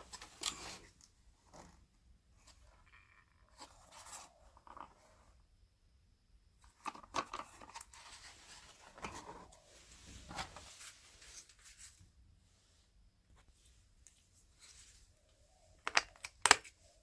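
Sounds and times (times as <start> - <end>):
cardboard rustling and scraping: 7.3 - 12.2.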